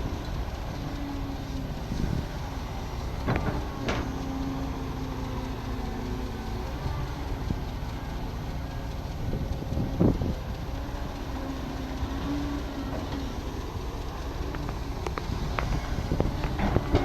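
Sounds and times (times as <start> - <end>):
excavator diesel engine running: 0.0 - 17.0
metal knocks: 3.2 - 4.3.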